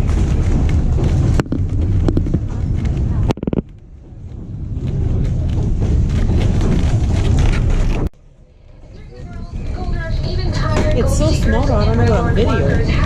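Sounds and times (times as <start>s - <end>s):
wind on microphone: 0.0s - 8.1s
train running rumble: 0.0s - 13.0s.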